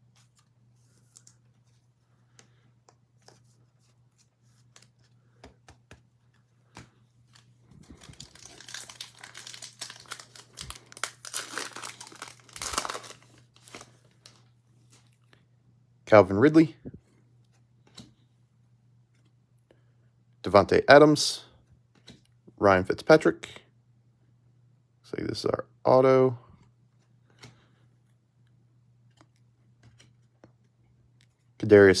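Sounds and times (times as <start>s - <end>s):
foil wrapper tearing and crinkling: 7.3s - 14.4s.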